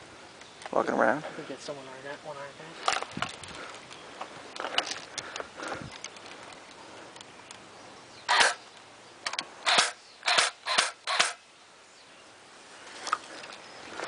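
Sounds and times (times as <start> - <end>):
airsoft rifle shots: 8.3 - 8.6, 9.6 - 11.4.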